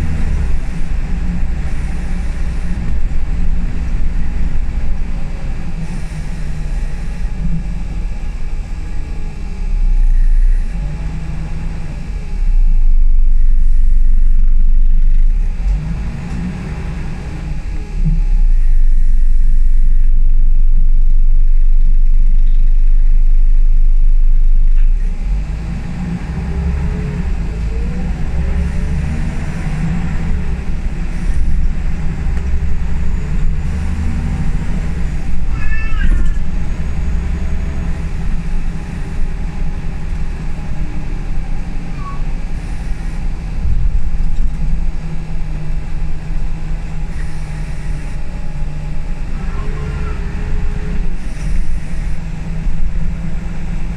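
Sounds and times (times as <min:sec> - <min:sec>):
bus engine accelerating: 0:00.0 - 0:53.9
deep rumble: 0:00.0 - 0:53.9
short high squeak: 0:35.5 - 0:36.5, 0:41.9 - 0:42.3.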